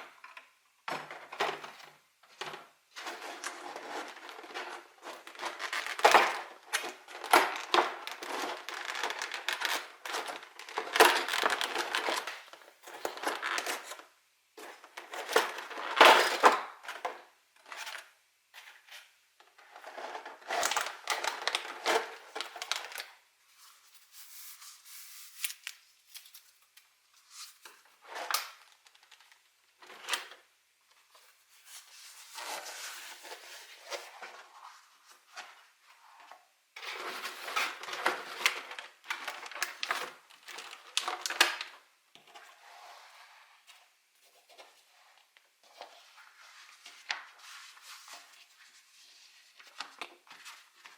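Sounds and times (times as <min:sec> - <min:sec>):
packaging crinkling and tearing: 0:03.4 - 0:13.9.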